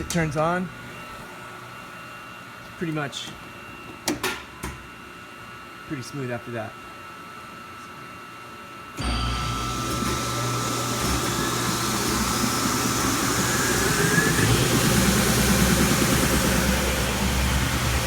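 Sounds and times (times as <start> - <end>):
belt sander humming: 9.0 - 18.0
sander whine rising in pitch: 9.0 - 18.0.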